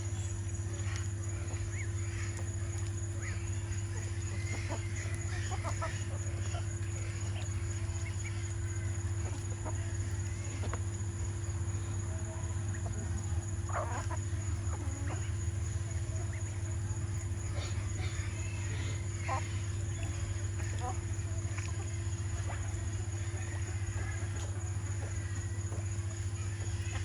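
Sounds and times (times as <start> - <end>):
steady low hum: 0.0 - 27.0
chickens clucking: 0.8 - 11.0, 11.9 - 27.0.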